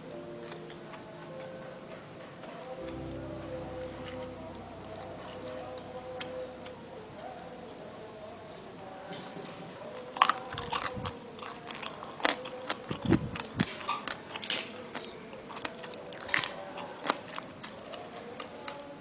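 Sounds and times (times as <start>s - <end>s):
faint steady hum: 0.0s - 19.0s
crunchy bites and chewing: 10.2s - 18.8s.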